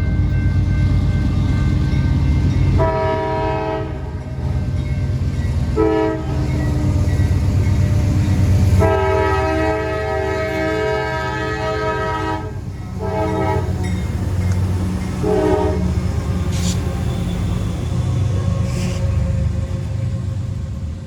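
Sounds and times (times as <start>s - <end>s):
freight train rumbling: 0.0s - 21.0s
locomotive air horn blasts: 2.8s - 4.2s, 5.8s - 6.6s, 8.6s - 14.0s, 15.2s - 18.0s.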